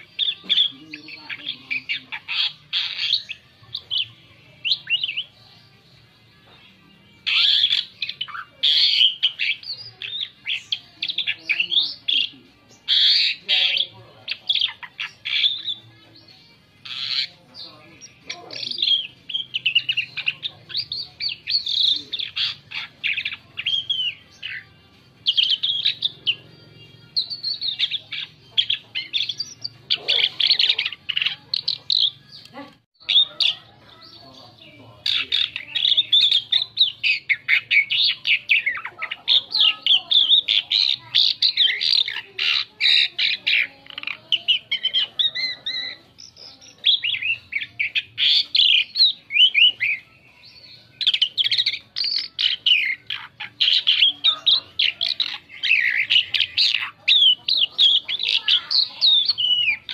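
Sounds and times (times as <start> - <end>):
starling chirps and whistles: 50.9 - 59.9.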